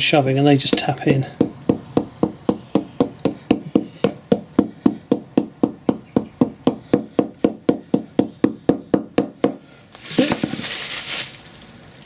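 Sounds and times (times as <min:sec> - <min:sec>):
rapid hammer taps: 0:00.7 - 0:09.6.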